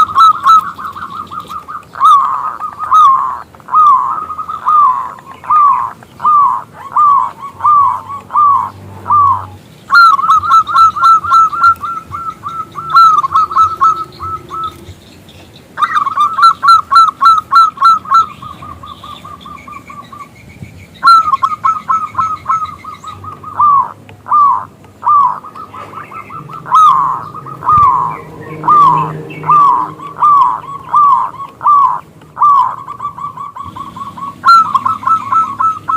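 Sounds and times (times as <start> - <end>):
dove cooing: 0.0 - 15.0, 15.8 - 20.3, 21.0 - 35.9.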